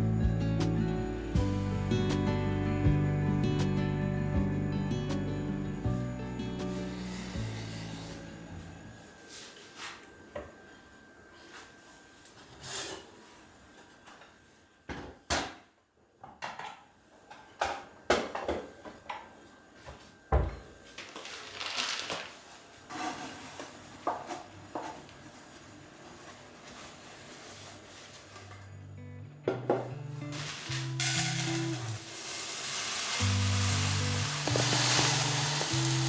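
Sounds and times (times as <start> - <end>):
containers set down: 20.4 - 22.4, 29.5 - 32.1, 34.4 - 36.0.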